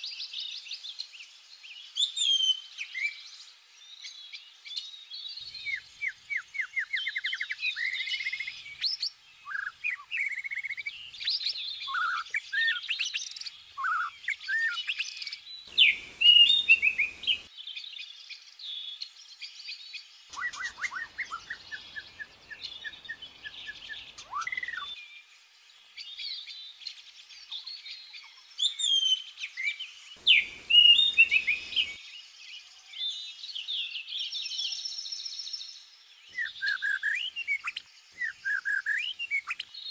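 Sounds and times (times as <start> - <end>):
faint hiss: 0.0 - 6.4, 15.0 - 17.5, 18.6 - 36.2
small birds chirping and trilling: 0.0 - 39.9.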